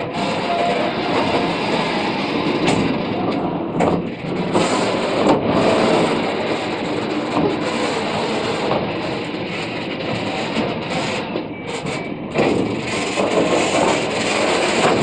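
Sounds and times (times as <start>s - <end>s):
steel wheels grinding on rails: 0.0s - 15.0s
wheels knocking on track: 11.8s - 15.0s.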